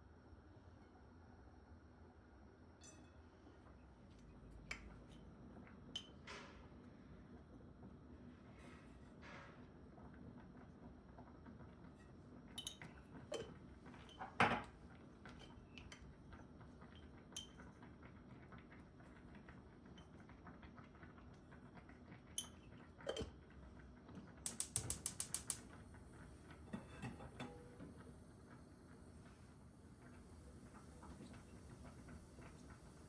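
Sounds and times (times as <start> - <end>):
household objects clicking and knocking: 24.4 - 25.7
run of even clicks: 24.5 - 25.6.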